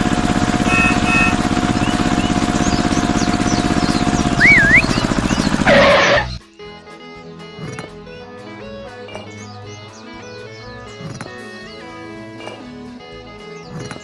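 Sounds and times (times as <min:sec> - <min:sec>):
horn beeping: 0:00.0 - 0:02.6, 0:04.2 - 0:06.4
tractor engine chugging: 0:00.0 - 0:06.4
birds chirping faintly: 0:00.5 - 0:07.4
brief noisy burst: 0:05.6 - 0:06.4
soft music: 0:06.3 - 0:14.0.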